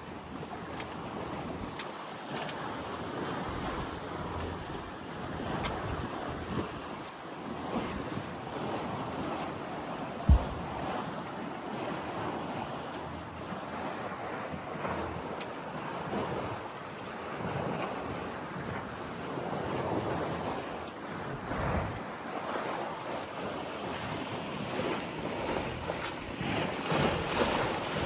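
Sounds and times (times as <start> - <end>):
sea washing: 0.0 - 28.0
wind blowing across microphone: 7.6 - 11.2, 19.5 - 22.8.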